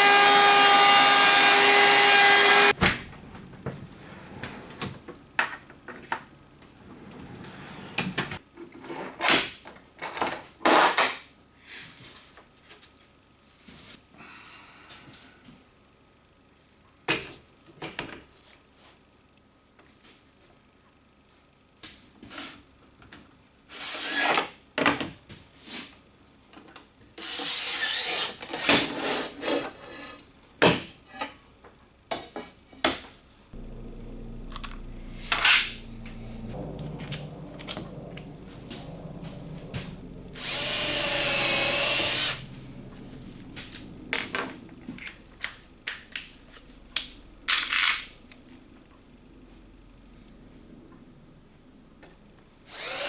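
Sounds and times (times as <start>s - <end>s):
power drill whirring: 0.0s - 2.8s, 33.6s - 43.9s, 52.7s - 53.0s
steady low hum: 33.6s - 47.6s.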